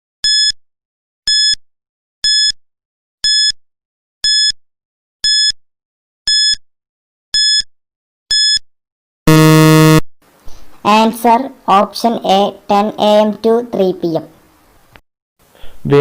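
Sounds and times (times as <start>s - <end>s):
low buzzer tone: 9.3s - 10.0s.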